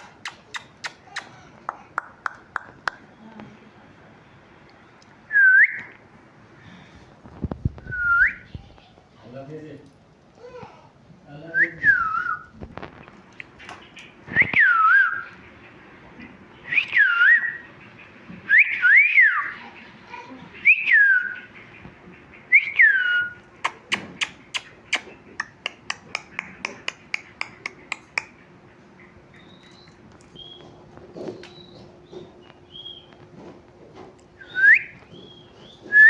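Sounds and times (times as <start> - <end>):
parrot whistling: 34.4 - 35.0.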